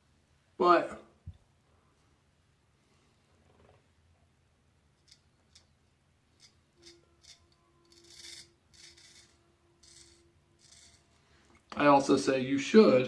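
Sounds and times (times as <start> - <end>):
razor scraping stubble: 5.0 - 11.2.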